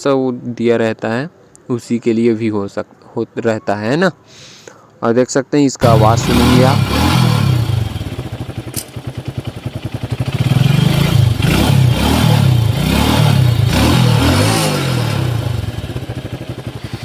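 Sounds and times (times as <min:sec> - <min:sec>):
motorcycle engine revving: 0:05.8 - 0:17.0.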